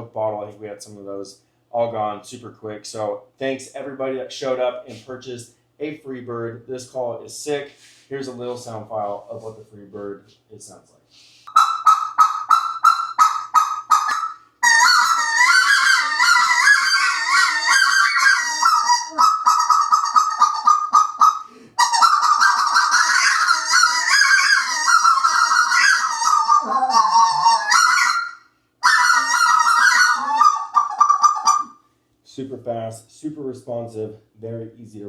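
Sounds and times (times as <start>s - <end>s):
goose call yelping: 11.5s - 31.8s.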